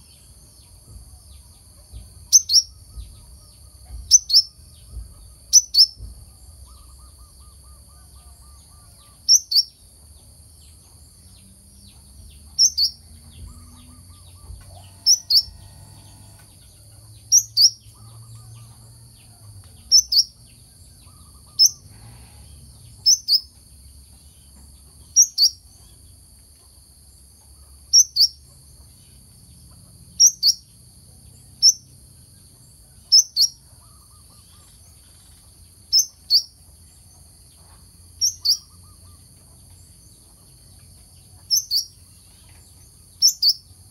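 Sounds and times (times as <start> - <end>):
faint low rumble: 10.0 - 25.1.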